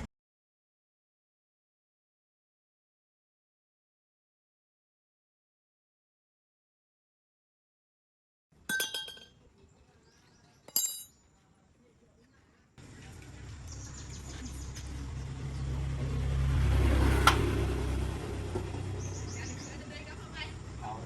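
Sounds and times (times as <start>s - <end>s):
metal clinks: 8.7s - 9.3s, 10.7s - 11.2s
low engine hum: 12.8s - 21.0s.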